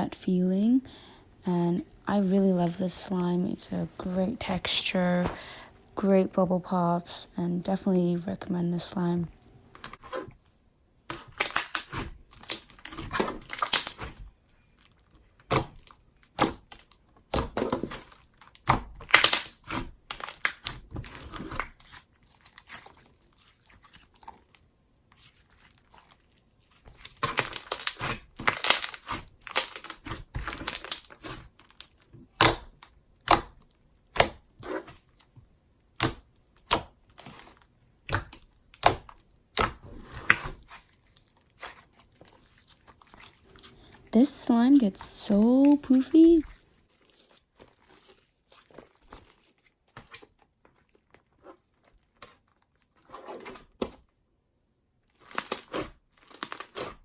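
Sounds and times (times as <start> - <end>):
slime squishing and popping: 11.1 - 14.7, 15.4 - 22.0.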